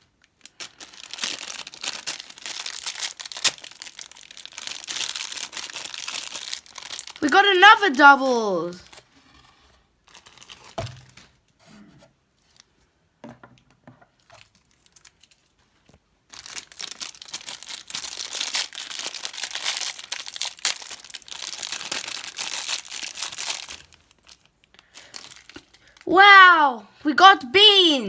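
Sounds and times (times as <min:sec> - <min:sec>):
plastic wrapper rustling: 0:00.3 - 0:07.3, 0:08.8 - 0:09.1, 0:10.0 - 0:11.3, 0:14.4 - 0:26.0
plastic film tearing and crinkling: 0:00.4 - 0:07.2, 0:10.1 - 0:10.8, 0:16.3 - 0:26.0.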